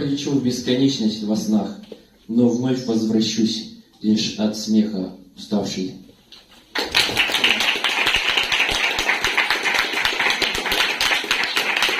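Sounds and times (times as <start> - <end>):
audience applauding: 6.7 - 11.9.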